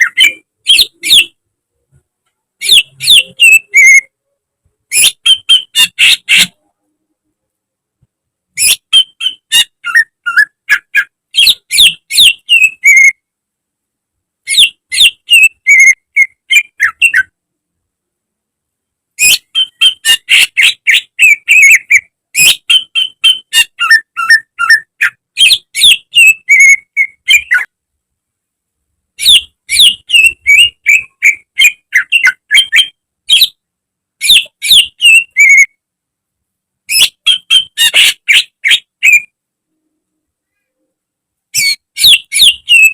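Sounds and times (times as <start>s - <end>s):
bird singing whistled notes: 0.0s - 1.4s, 2.6s - 4.1s, 4.9s - 6.6s, 8.6s - 13.2s, 14.5s - 17.3s, 19.2s - 27.7s, 29.2s - 33.6s, 34.2s - 35.7s, 36.9s - 39.3s, 41.6s - 42.9s.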